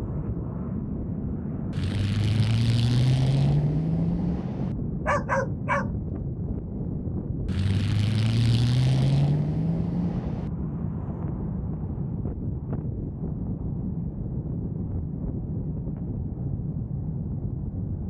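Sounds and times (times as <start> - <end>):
low road rumble: 0.8 - 10.7
vehicle engine accelerating: 1.8 - 5.9, 7.5 - 10.5
short sharp calls: 5.1 - 5.9.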